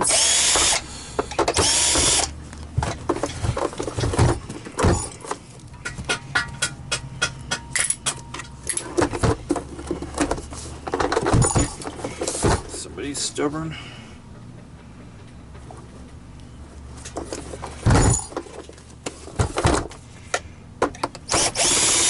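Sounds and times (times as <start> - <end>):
power screwdriver whirring: 0.0 - 0.9, 1.5 - 2.3, 21.3 - 22.0.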